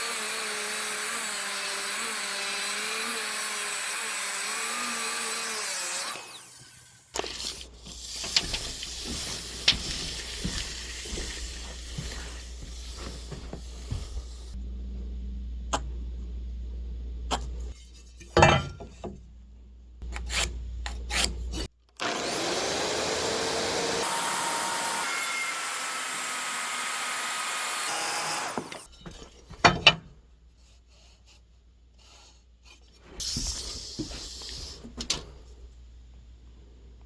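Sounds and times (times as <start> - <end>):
saw cutting through wood: 0.0 - 7.2, 22.0 - 28.9.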